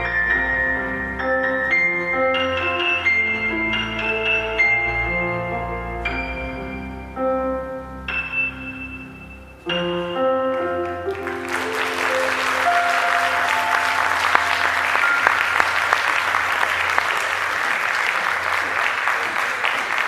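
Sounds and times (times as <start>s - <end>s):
instrumental music: 0.0s - 17.7s
audience applause: 11.1s - 20.0s.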